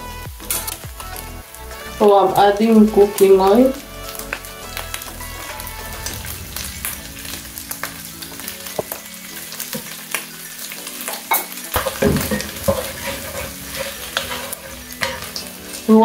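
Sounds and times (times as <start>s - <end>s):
food sizzling in hot oil: 0.0s - 16.0s
utensil scraping a pan: 11.4s - 16.0s.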